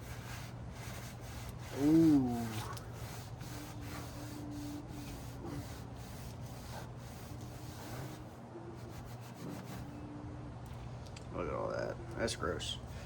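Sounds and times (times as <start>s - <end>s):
rag rubbing a wheel: 0.0s - 9.9s.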